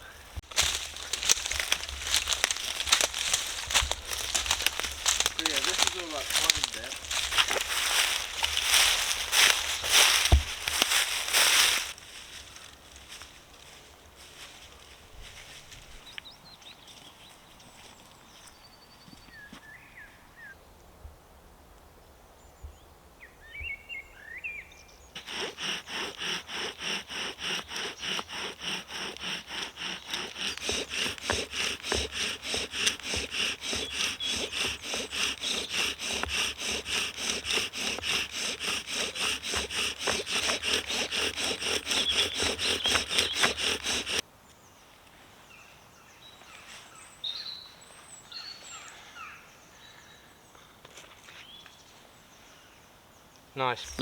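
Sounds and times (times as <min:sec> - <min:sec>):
birds chirping: 0:00.0 - 0:11.4, 0:29.4 - 0:44.2, 0:53.2 - 0:54.0
bow drill rhythmic rubbing: 0:00.4 - 0:11.9, 0:25.2 - 0:44.2.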